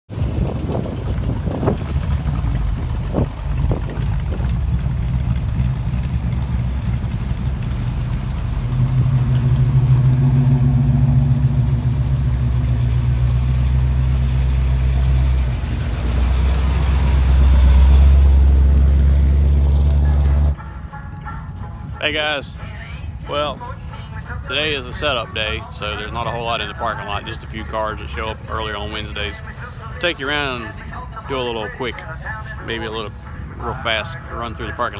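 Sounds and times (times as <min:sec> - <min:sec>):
car engine running: 0:00.1 - 0:20.6.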